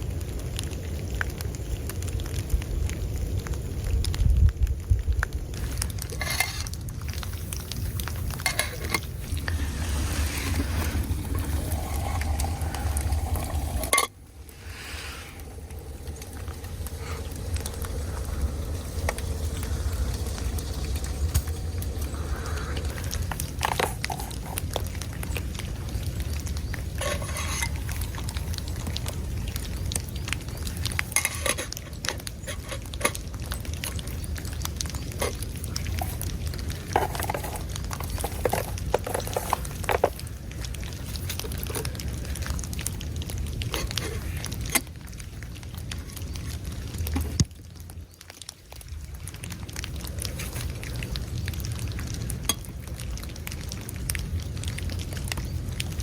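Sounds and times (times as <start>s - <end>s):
steady low rumble: 0.0s - 47.8s
metal spoon stirring in metal pot: 6.1s - 6.8s, 8.3s - 14.1s, 23.6s - 24.8s, 27.0s - 28.2s, 35.9s - 40.2s.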